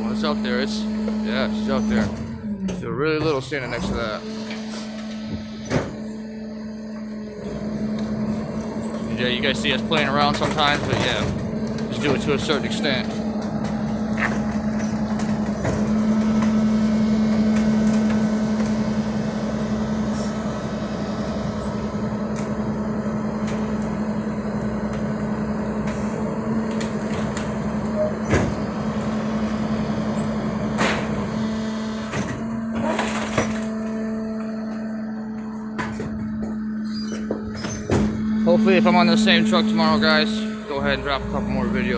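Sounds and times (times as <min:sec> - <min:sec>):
garbage truck engine running: 0:00.0 - 0:41.9
sharp knocks and clanks: 0:09.8 - 0:16.6, 0:32.1 - 0:39.9.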